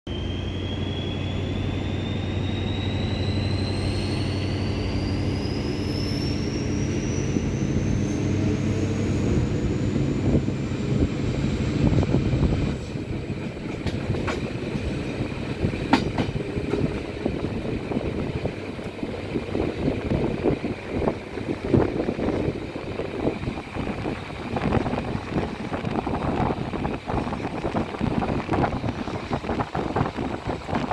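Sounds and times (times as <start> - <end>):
diesel locomotive pulling away: 0.1 - 30.9
wheel clacks over rail joints: 13.3 - 17.1.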